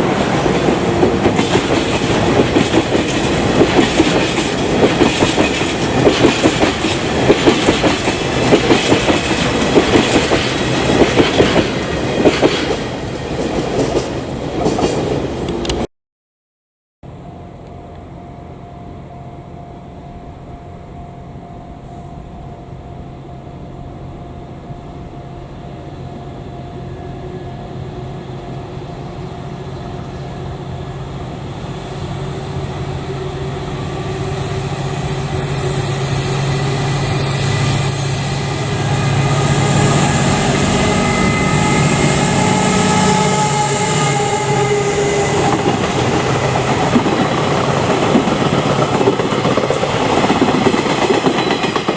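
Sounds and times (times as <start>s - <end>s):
train wheels on rails: 0.0s - 15.9s, 27.7s - 51.9s
locomotive motors humming: 22.3s - 51.5s
high wheel squeal: 33.3s - 46.2s.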